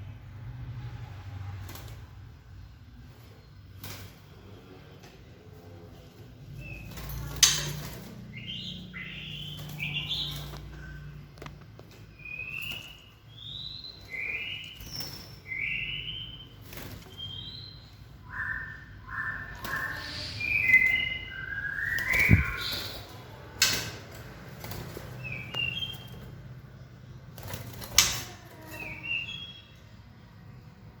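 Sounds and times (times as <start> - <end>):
birds whistled chirps: 6.6 - 11.3, 12.0 - 23.2, 25.2 - 26.3, 28.6 - 29.8.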